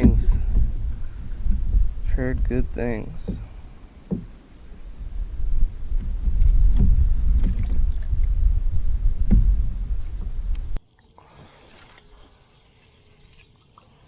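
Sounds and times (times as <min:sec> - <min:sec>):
light knocks on boat: 0:00.0 - 0:04.4, 0:06.0 - 0:08.1, 0:09.2 - 0:10.3
low rumbling noise: 0:00.0 - 0:10.8.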